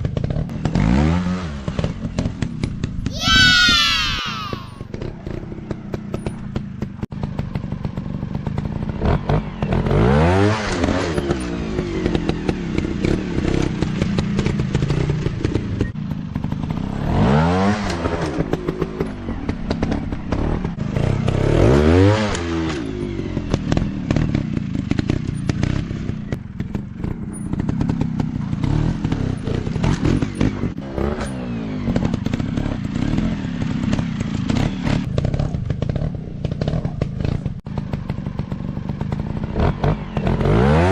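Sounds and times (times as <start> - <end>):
dirt bike engine revving: 16.4 - 40.9.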